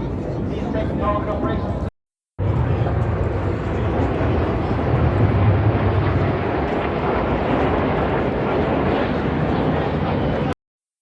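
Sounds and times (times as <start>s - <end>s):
aircraft engine rumble overhead: 0.0s - 10.6s.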